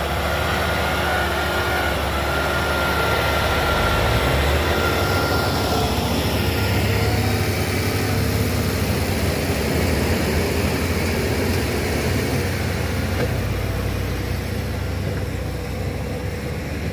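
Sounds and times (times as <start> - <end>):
heavy diesel engine running: 0.0 - 16.9.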